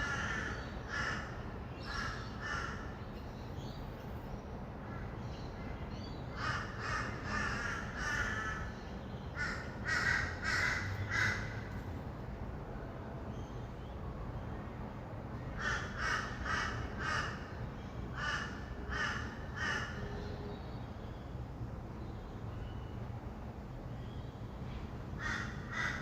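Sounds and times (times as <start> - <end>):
distant traffic rumble: 0.0 - 26.0.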